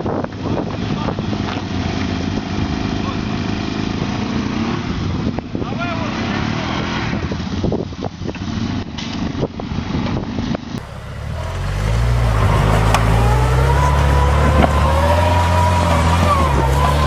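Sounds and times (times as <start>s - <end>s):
truck engine pulling hard: 0.0s - 17.0s
truck engine running: 10.7s - 17.0s.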